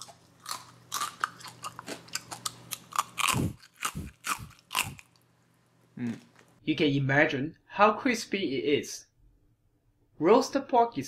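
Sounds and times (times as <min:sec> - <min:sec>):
crunching pork crackling: 0:00.0 - 0:05.3.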